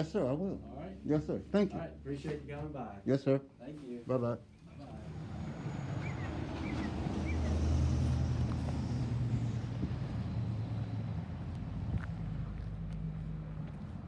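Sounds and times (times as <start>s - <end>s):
vehicle engine humming: 4.8s - 14.0s.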